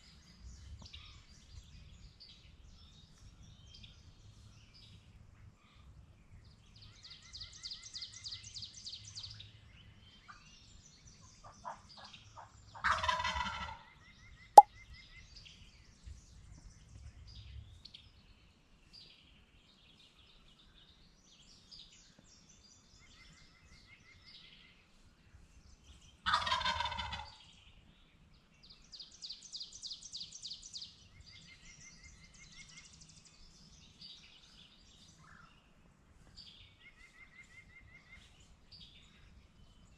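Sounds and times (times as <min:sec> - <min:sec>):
turkey gobbling: 0:12.8 - 0:13.8, 0:26.3 - 0:27.3.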